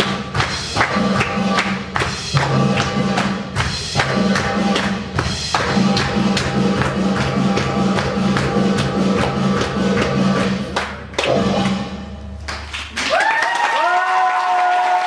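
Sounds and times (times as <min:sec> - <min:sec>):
hand drums fast rhythm: 0:00.0 - 0:11.0.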